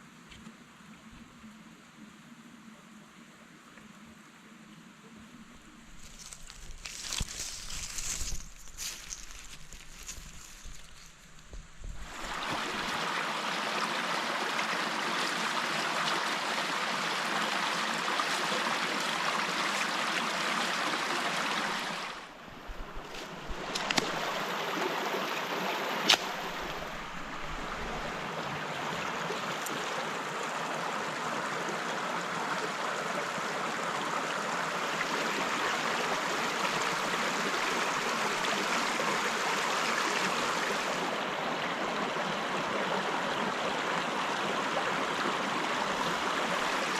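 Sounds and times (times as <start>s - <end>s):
rushing water: 5.8s - 46.9s.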